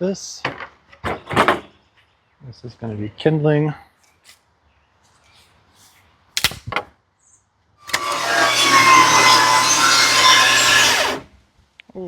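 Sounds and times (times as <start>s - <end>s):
table saw running: 7.8s - 11.3s.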